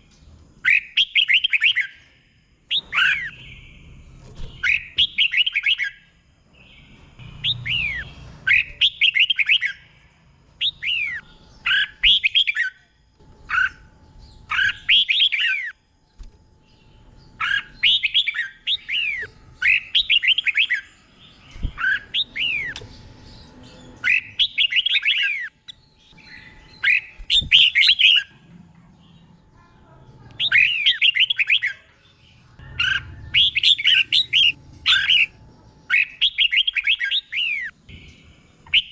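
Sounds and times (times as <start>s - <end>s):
bird singing whistled notes: 0.0s - 2.0s, 2.7s - 9.9s, 10.6s - 15.8s, 16.7s - 28.3s, 30.4s - 31.8s, 32.6s - 38.9s.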